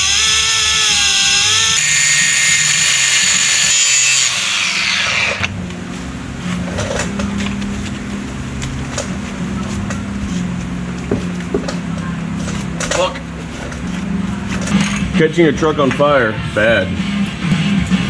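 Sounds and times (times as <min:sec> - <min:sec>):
power tool whining and spinning down: 0:00.0 - 0:05.5.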